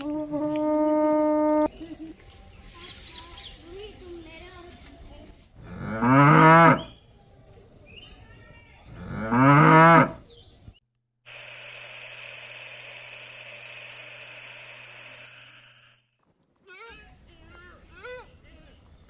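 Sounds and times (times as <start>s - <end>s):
cow mooing: 5.6s - 6.9s, 8.9s - 10.2s.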